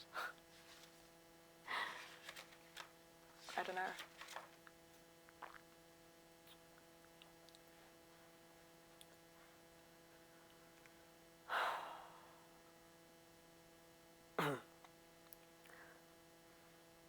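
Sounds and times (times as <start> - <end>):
faint electrical hum: 0.0 - 17.0
person exhaling: 11.5 - 12.5.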